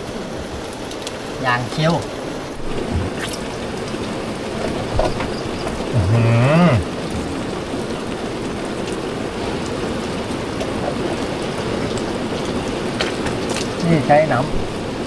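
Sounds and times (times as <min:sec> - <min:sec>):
heavy rain: 0:00.0 - 0:15.0
cow mooing: 0:05.9 - 0:06.9.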